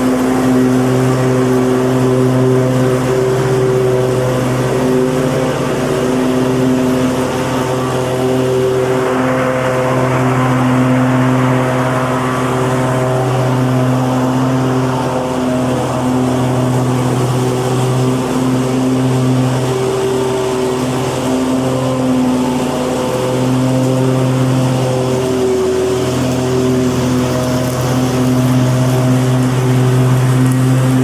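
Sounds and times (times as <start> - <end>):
lawn mower engine running: 0.0 - 31.0.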